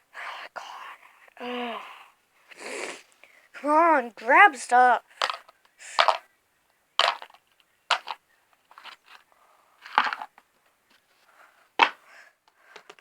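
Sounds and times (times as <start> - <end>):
plastic toy pieces clattering: 5.2 - 6.2, 7.0 - 10.4.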